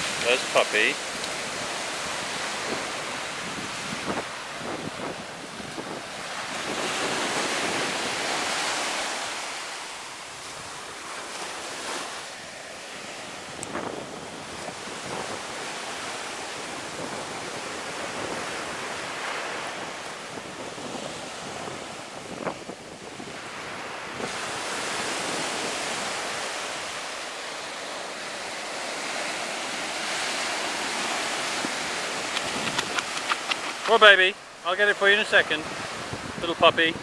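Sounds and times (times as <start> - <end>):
ocean surf washing on beach: 0.0 - 37.0
wind buffeting microphone: 1.2 - 8.8, 30.8 - 33.9, 35.6 - 37.0.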